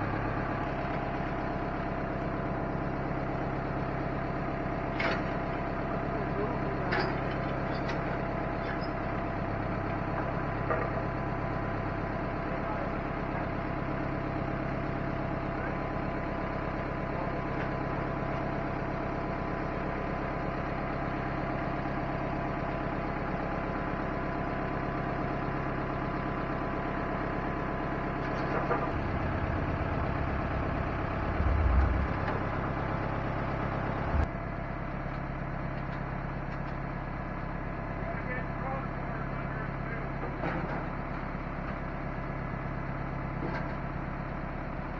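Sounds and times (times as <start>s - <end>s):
vehicle engine idling: 0.0s - 44.9s
low thump: 29.9s - 32.4s.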